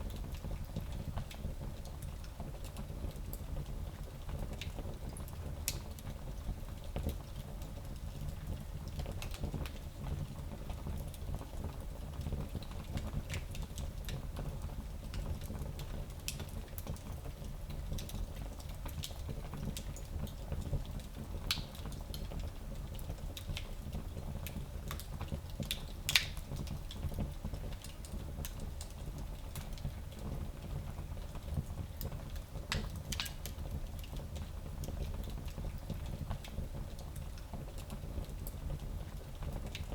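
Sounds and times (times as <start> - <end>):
wood fire crackling: 11.9 - 39.9.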